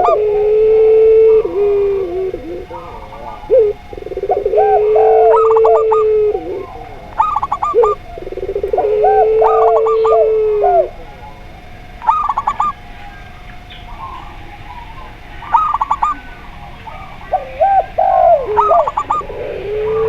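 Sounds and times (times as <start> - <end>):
doves cooing: 0.0 - 20.0
rising coo notes: 0.0 - 20.0.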